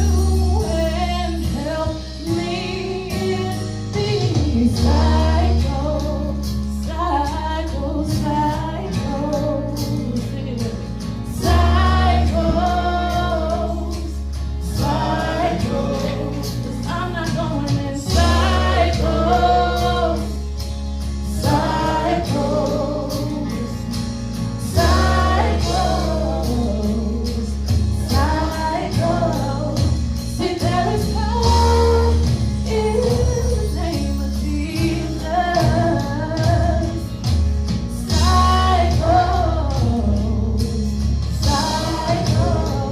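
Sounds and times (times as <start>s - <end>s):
choir singing gospel song: 0.0s - 37.3s, 37.9s - 42.9s
heavy bass line: 10.8s - 33.3s.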